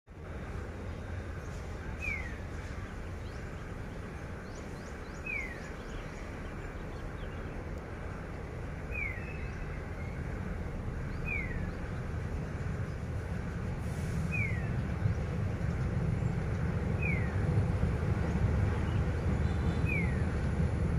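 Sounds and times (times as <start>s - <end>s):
low steady rumble: 0.1s - 20.9s
birds chirping: 0.2s - 20.9s.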